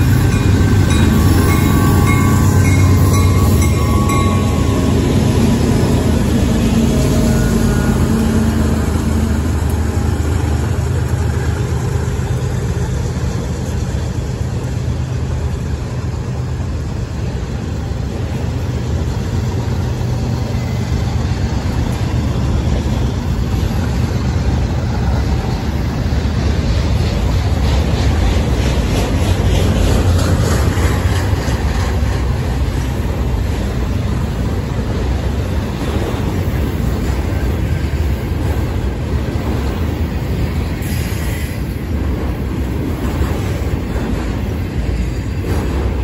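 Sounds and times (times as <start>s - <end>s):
diesel locomotive engines droning: 0.0s - 46.0s
train wheels rumbling on rail: 0.0s - 46.0s.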